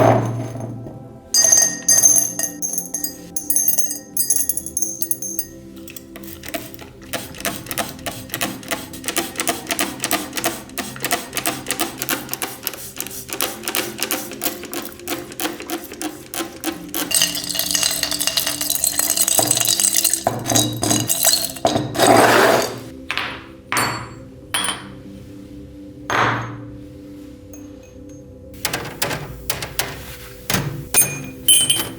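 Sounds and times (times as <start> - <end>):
soft background music: 0.0 - 31.9
hissy scraping on metal: 28.6 - 31.4.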